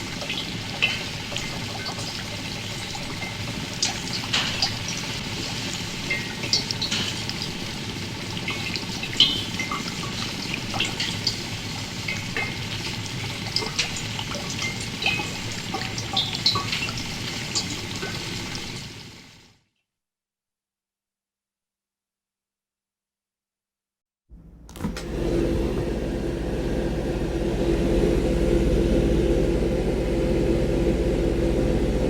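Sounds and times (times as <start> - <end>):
water drips: 8.4 - 18.4.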